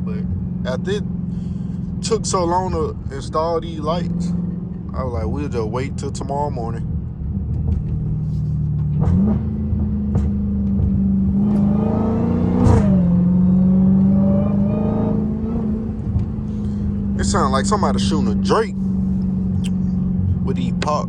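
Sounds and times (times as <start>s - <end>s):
car engine revving: 0.0s - 21.0s
exhaust pops: 7.4s - 11.7s.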